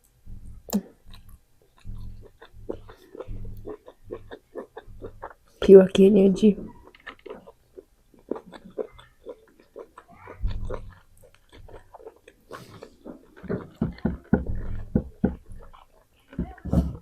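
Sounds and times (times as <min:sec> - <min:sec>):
chewing and biting: 0:00.3 - 0:05.6, 0:06.7 - 0:17.0
low dull thuds: 0:13.5 - 0:15.7.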